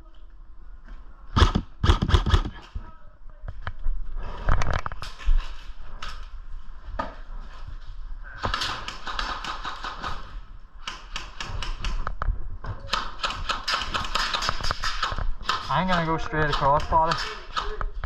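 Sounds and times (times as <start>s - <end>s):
airsoft guns firing: 1.4s - 2.6s, 8.4s - 12.1s, 12.9s - 17.9s.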